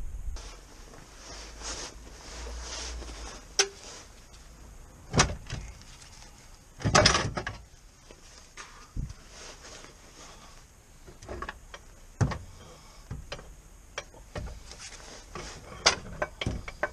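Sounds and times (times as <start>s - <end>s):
sharp knocks and clanks: 15.4s - 16.9s.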